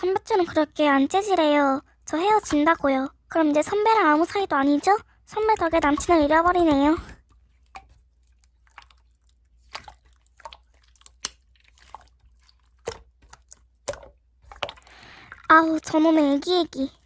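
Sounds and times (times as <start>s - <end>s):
slime squished by hand: 5.5s - 15.5s.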